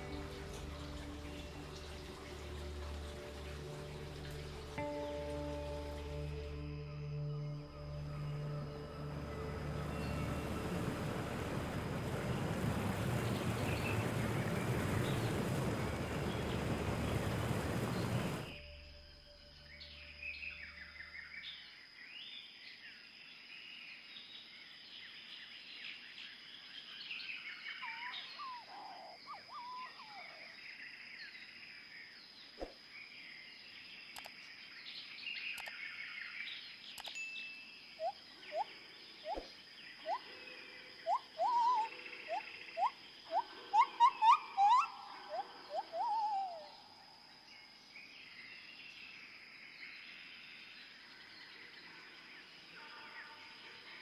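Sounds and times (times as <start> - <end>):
birds chirping: 8.1 - 18.6, 27.7 - 30.6, 38.0 - 49.2
rising whistled bird notes: 27.2 - 30.6, 36.3 - 48.7
sharp clicks: 34.2 - 34.5, 36.9 - 37.2.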